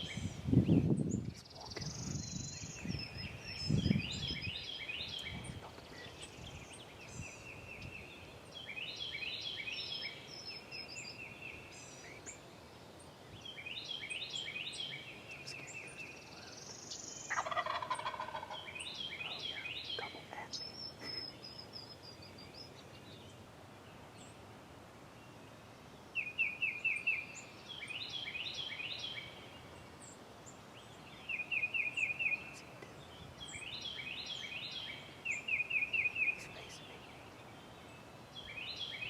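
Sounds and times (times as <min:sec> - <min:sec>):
turkey gobbling: 0:17.3 - 0:18.7.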